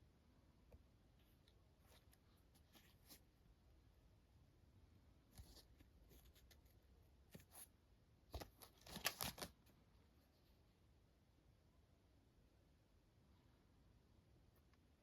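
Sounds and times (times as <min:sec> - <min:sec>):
soft handling rustles: 0:01.2 - 0:03.4, 0:05.2 - 0:10.6.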